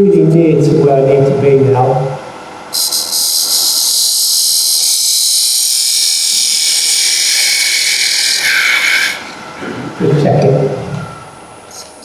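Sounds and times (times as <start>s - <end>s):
lathe tool cutting wood hiss: 2.7s - 9.6s.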